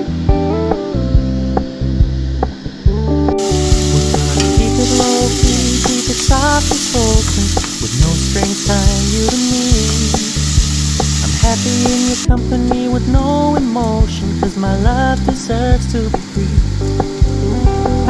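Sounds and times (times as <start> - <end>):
music with guitar and singing: 0.0 - 18.0
onion sizzling in oil: 3.4 - 12.3.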